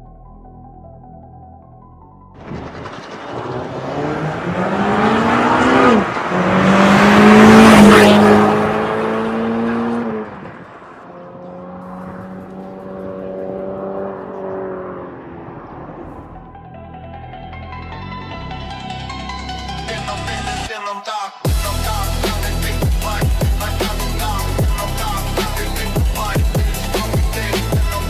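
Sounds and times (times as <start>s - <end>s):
car exhaust accelerating hard: 2.4s - 16.5s
gear change: 2.4s - 16.5s.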